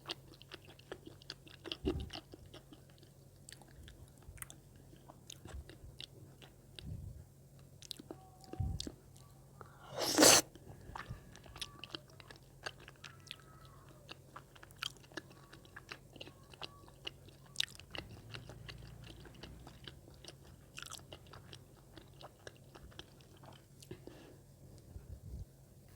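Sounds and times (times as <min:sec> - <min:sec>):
wet chewing mouth clicks: 0:09.9 - 0:10.4.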